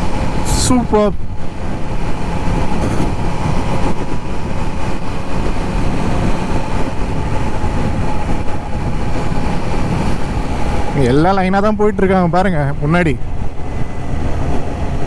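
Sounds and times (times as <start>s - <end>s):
wind rush on microphone: 0.0s - 15.0s
motorcycle engine running evenly: 1.5s - 10.9s.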